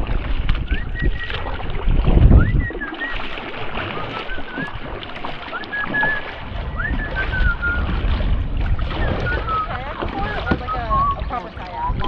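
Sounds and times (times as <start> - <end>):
kayak paddling: 0.0 - 12.0
water splashing and sloshing: 0.0 - 12.0
bird whistling calls: 0.7 - 1.5, 2.3 - 4.8, 5.4 - 7.9, 9.0 - 12.0.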